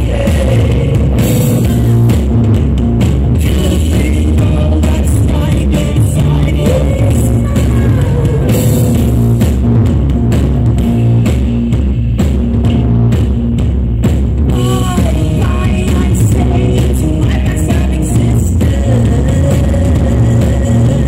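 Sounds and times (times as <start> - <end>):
person singing: 0.0 - 2.1, 3.4 - 9.1, 14.6 - 21.0
rock band playing live: 0.0 - 21.0.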